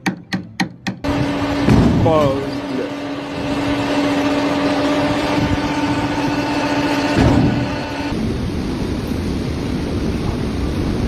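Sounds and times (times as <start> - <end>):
machine motor humming: 1.0 - 8.4
dull rushing noise: 1.0 - 11.0
loud rumbling noise: 1.0 - 11.0.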